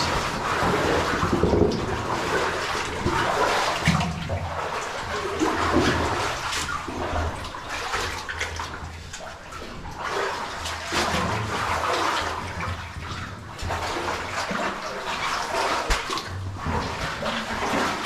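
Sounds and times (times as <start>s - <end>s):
feet wading through water: 0.0s - 18.0s.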